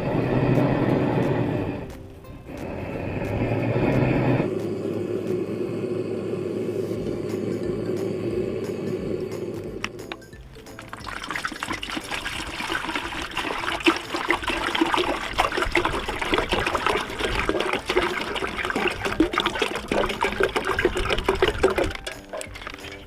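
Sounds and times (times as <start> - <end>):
water running and trickling: 10.1 - 23.0
small water splashes: 10.6 - 23.0.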